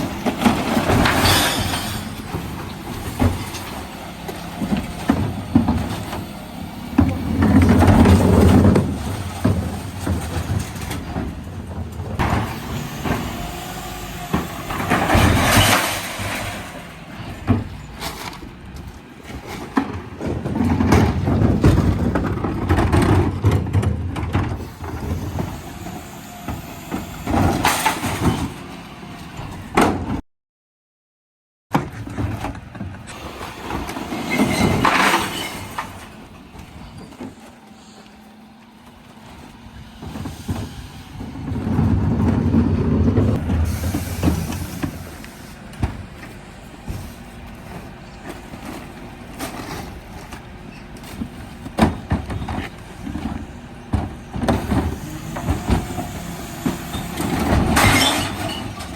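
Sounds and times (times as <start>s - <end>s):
recycling crashing into hopper: 0.0s - 18.6s, 19.3s - 30.2s, 31.7s - 37.4s, 51.1s - 58.9s.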